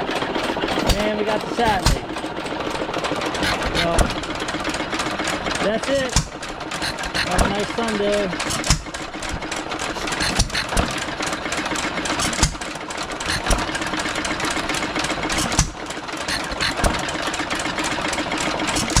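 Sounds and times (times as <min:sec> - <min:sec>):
engines clattering: 0:00.0 - 0:19.0
engine firing bangs: 0:00.4 - 0:14.1.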